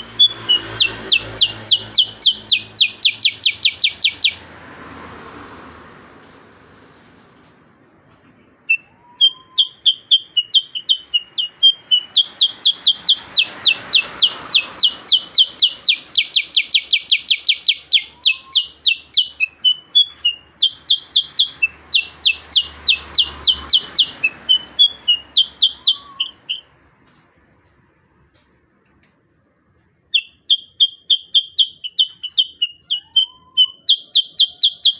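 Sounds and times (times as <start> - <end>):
bird rapid chirping song: 0.0 - 4.4, 8.4 - 26.8, 30.1 - 34.9.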